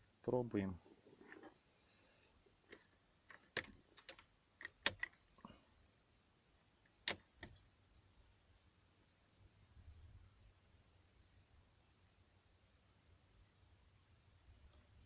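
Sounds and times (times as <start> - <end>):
key clicking in ignition lock: 2.7 - 5.2.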